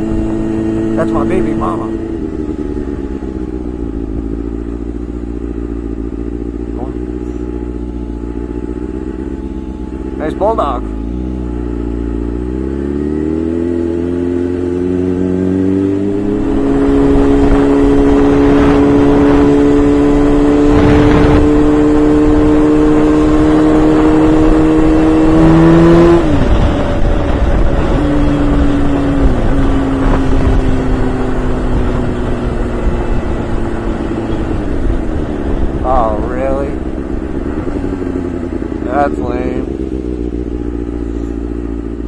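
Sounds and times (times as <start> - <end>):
sport bike engine revving: 0.0 - 42.0
wind rush: 16.1 - 35.9.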